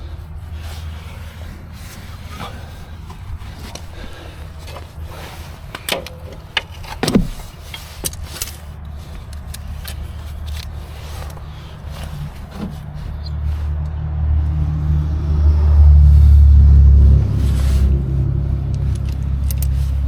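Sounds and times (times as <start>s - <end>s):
car engine idling: 0.0s - 20.0s
sharp clicks and knocks: 5.7s - 8.6s, 18.6s - 20.0s.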